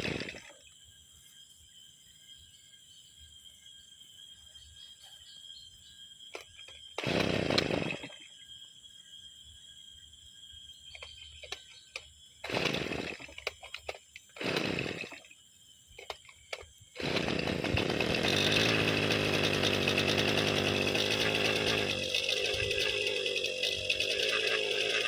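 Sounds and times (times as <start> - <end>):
two-stroke engine running: 0.0 - 0.4, 7.0 - 8.1, 12.5 - 13.3, 14.4 - 15.2, 17.0 - 25.0
recoil starter pulls: 0.0 - 0.5, 6.3 - 8.2, 10.9 - 15.3, 16.0 - 25.0.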